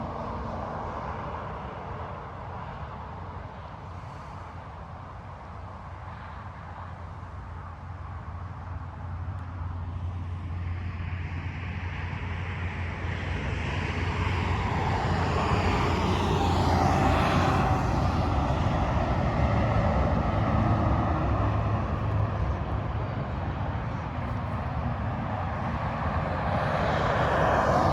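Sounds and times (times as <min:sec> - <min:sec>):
heavy truck passing: 0:12.6 - 0:27.9.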